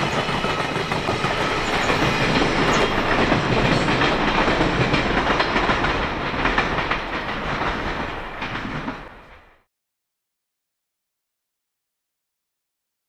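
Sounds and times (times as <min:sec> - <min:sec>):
wheels clacking over rail joints: 0:00.0 - 0:09.6
freight train rolling past: 0:00.0 - 0:09.7.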